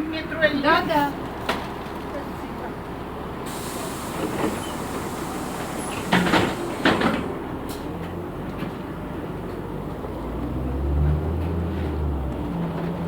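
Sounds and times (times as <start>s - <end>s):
bus cabin running noise: 0.0s - 13.0s
loud hissing bursts: 3.5s - 7.2s.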